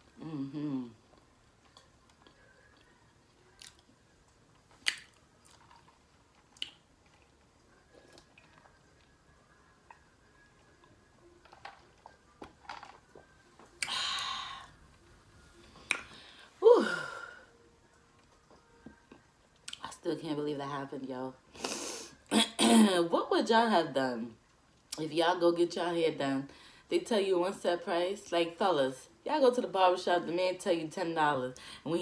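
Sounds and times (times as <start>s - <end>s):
person chewing: 3.5s - 3.9s, 4.6s - 8.8s
mouth clicks and smacks: 4.8s - 5.6s, 6.6s - 6.8s.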